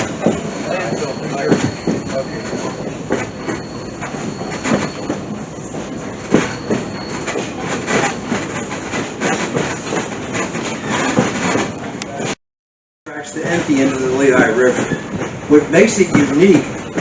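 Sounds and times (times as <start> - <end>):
clanks and knocks from wheels: 0.0 - 12.4, 13.2 - 17.0
train rumbling along rails: 0.0 - 12.4, 13.1 - 17.0.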